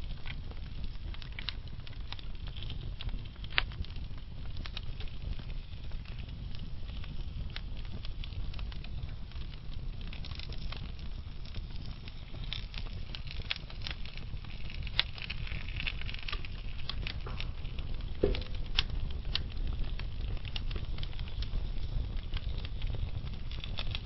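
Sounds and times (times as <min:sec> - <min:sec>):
burning logs crackling and popping: 0:00.0 - 0:24.0
fire flames rumbling: 0:00.0 - 0:24.0.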